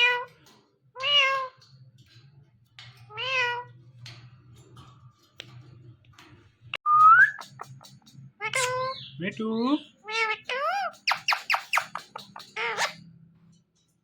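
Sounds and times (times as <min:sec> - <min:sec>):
parrot imitating cat meow: 0:00.0 - 0:00.3, 0:01.0 - 0:01.6.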